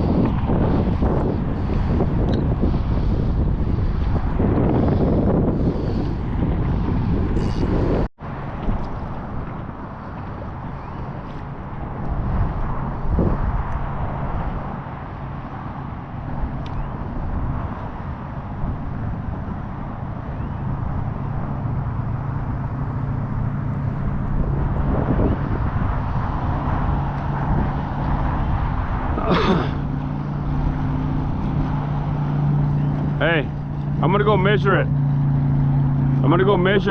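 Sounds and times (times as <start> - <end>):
wind noise on microphone: 0.0 - 36.9
boat motor running: 18.6 - 36.9.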